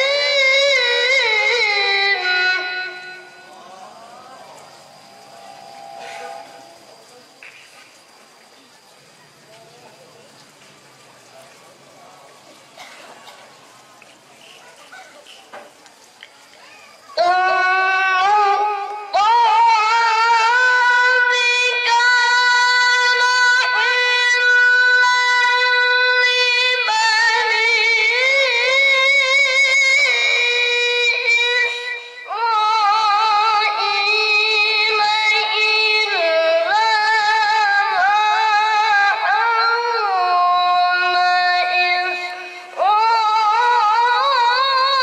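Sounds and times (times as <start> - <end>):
child chanting recitation: 0.0 - 4.1, 16.6 - 45.0.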